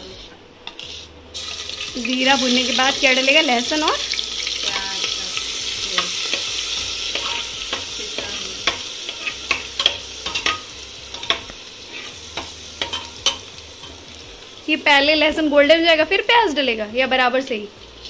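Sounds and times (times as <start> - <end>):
spices sizzling in hot oil: 0.0 - 18.0
ladle stirring and clinking pot: 7.1 - 14.0.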